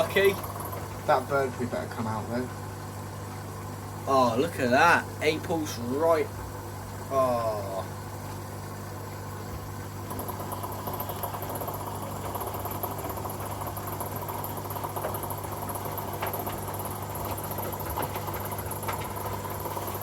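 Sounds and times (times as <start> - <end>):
washing machine motor hum: 0.0 - 20.0
water splashing in drum: 7.9 - 20.0
small ticks: 9.5 - 20.0.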